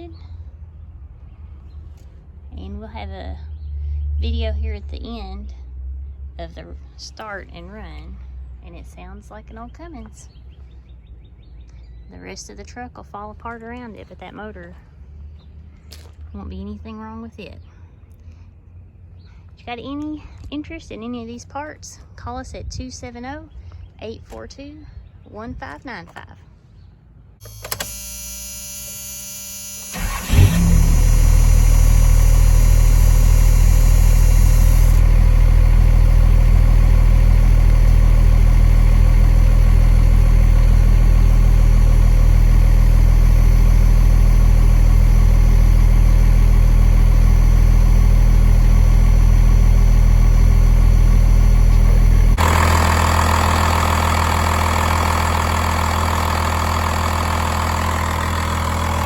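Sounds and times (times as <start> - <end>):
diesel engine idling: 27.4 - 59.0
engine starter cranking: 27.4 - 59.0.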